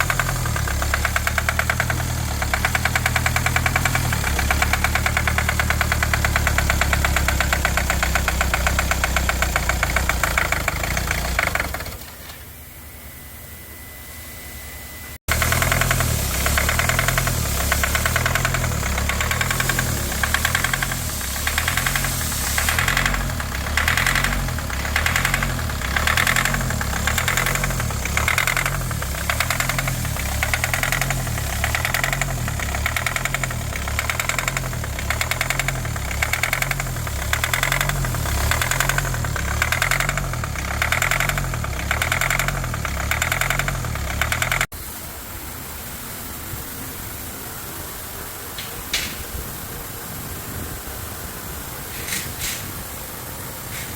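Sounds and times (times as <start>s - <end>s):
diesel engine idling roughly: 0.0s - 12.1s, 15.3s - 44.7s
engine knocking rattle: 0.0s - 12.1s, 15.3s - 44.7s.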